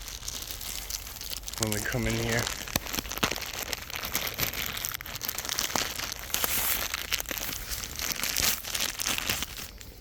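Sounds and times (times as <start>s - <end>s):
dry leaves rustling and crunching: 0.0s - 10.0s
sharp crackles: 0.0s - 10.0s.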